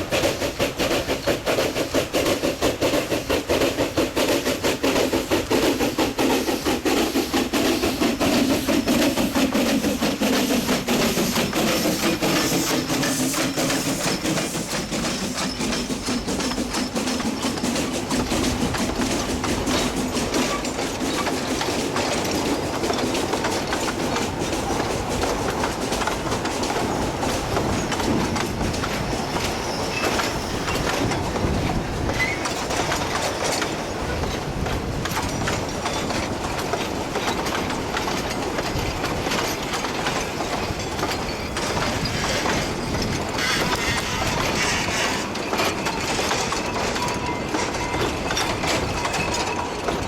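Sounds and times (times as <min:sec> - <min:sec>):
train wheels clattering over rails: 0:00.0 - 0:50.0
light wheel squeal: 0:12.0 - 0:18.0, 0:29.4 - 0:31.0, 0:32.1 - 0:32.6, 0:41.2 - 0:49.8.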